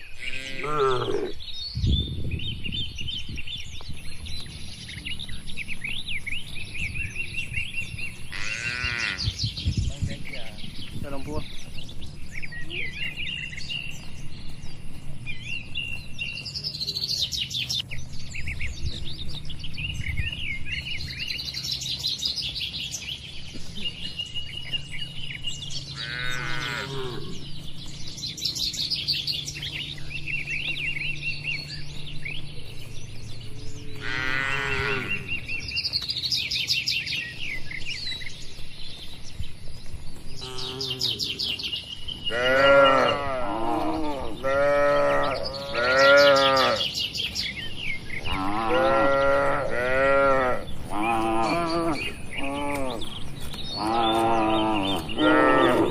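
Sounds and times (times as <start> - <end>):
cattle lowing: 0.0 - 1.6, 33.1 - 35.7, 40.3 - 47.1, 48.1 - 55.9
birds chirping and trilling: 0.0 - 55.9.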